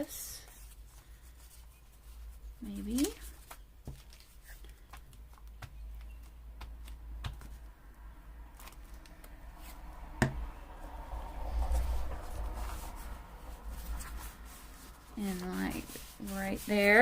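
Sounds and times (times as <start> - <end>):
paper rustling: 0.4 - 7.6, 11.8 - 17.0
low hum: 7.6 - 15.9.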